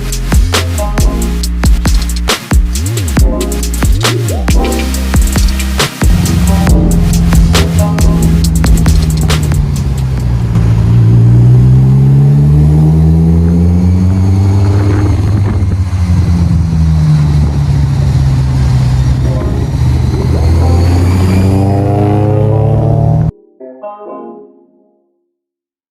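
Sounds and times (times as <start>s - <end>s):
car engine accelerating: 0.0s - 23.3s.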